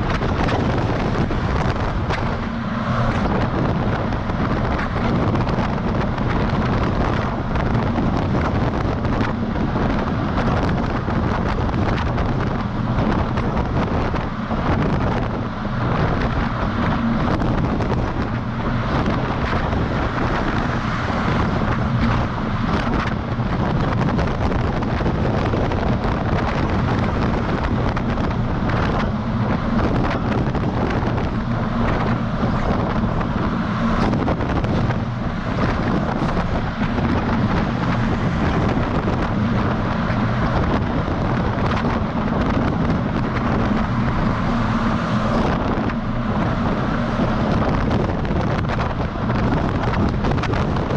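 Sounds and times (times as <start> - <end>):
road noise: 0.0 - 50.9
truck engine drone: 0.0 - 50.9
wind on microphone: 0.0 - 50.9.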